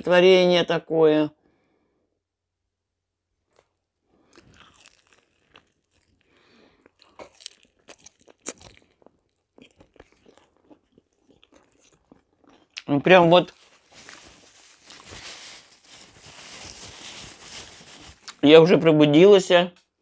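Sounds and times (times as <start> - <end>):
person chewing fritter: 3.4 - 16.8.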